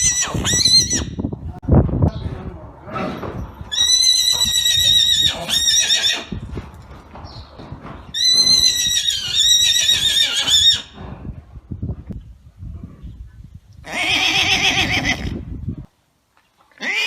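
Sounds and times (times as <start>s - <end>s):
horse whinnying: 0.0s - 1.2s, 3.7s - 6.3s, 8.1s - 11.0s, 13.8s - 15.4s, 16.8s - 17.0s.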